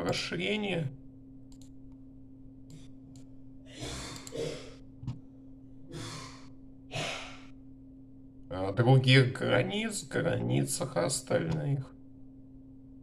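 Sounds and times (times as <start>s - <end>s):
steady low hum: 0.0s - 13.0s
man breathing: 5.9s - 7.6s.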